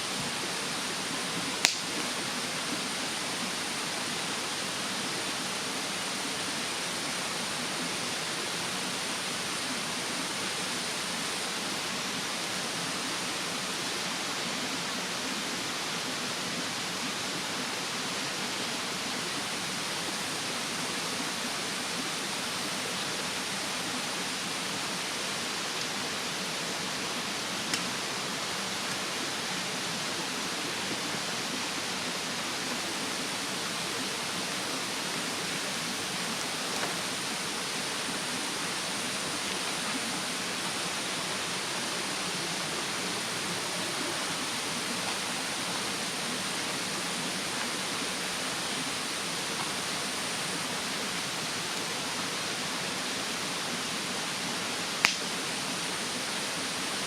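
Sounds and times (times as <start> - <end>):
mountain stream rushing: 0.0 - 57.0
campfire popping faintly: 1.6 - 2.3, 27.6 - 28.0, 55.0 - 55.4.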